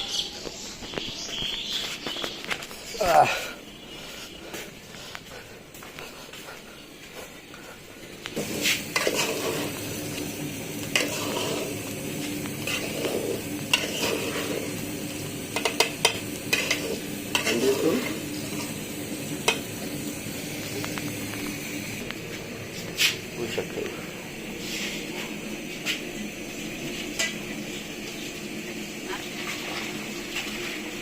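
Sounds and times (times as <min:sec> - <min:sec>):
food sizzling in a pot: 0:08.4 - 0:22.1, 0:22.9 - 0:31.0.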